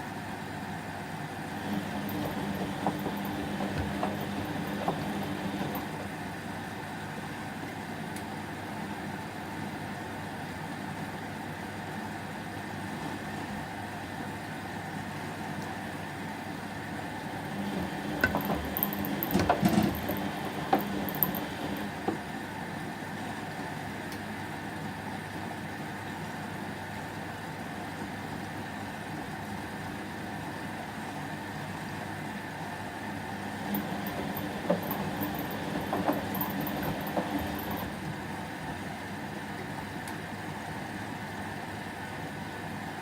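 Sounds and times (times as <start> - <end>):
washing machine low hum: 0.0 - 43.0
knocks and clicks: 1.6 - 6.1, 17.6 - 22.2, 33.6 - 38.1
washing machine drum turning: 1.6 - 6.2, 17.4 - 22.3, 33.5 - 38.9.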